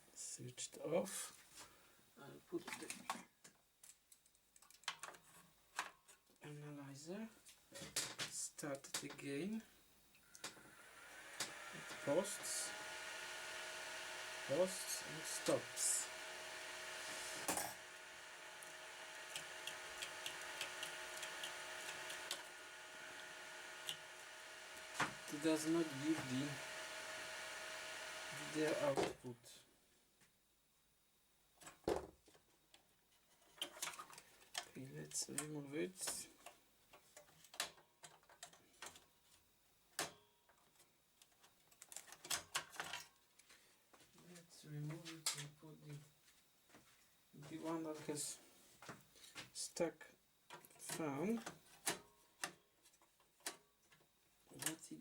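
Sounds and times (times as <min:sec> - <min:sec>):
computer electrical hum and whine: 0:10.5 - 0:29.1
computer hardware clicks and taps: 0:19.3 - 0:22.5.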